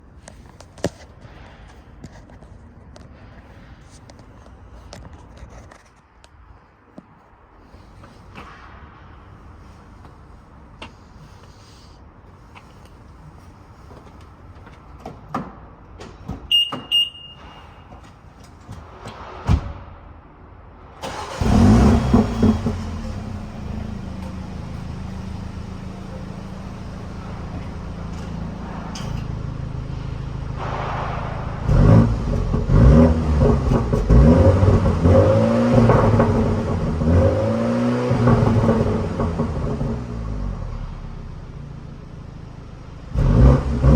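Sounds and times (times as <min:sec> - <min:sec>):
short beep: 0:16.5 - 0:18.0
car engine starting and idling: 0:20.8 - 0:43.9
car engine revving: 0:21.0 - 0:40.9, 0:43.1 - 0:43.9.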